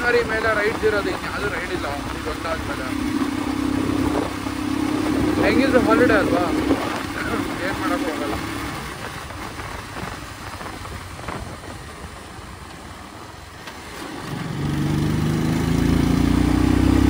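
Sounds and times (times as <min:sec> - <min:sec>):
motorcycle engine: 0:00.0 - 0:17.0
road and wind noise: 0:00.0 - 0:17.0.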